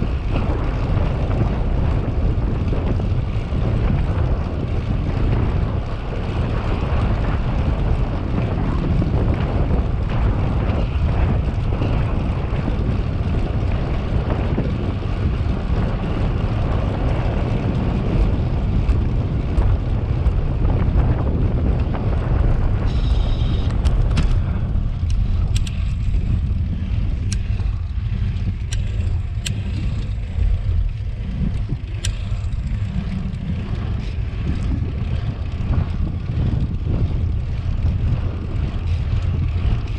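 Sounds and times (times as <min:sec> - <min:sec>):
wind buffeting microphone: 0:00.0 - 0:39.9
sharp clicks: 0:25.0 - 0:26.0.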